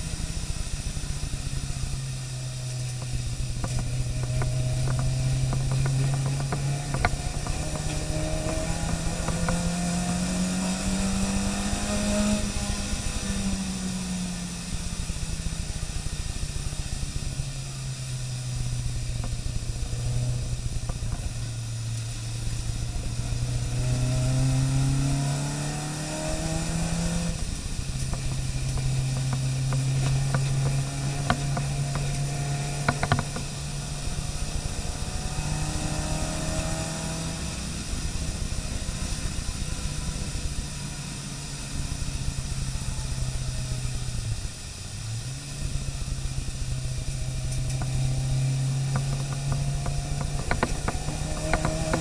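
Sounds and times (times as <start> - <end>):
car engine running under load: 0.0 - 52.0
steady hiss: 0.0 - 52.0
sharp ticks: 2.8 - 10.2, 27.3 - 33.7, 48.9 - 52.0.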